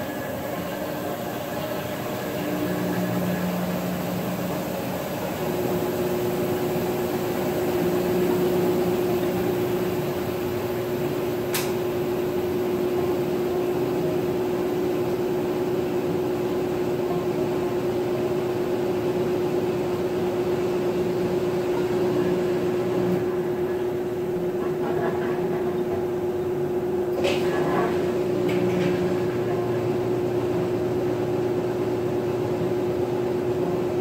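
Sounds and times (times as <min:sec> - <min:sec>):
steady tone: 0:00.0 - 0:11.2
washing machine motor hum: 0:00.0 - 0:34.0
short click: 0:11.5 - 0:11.8.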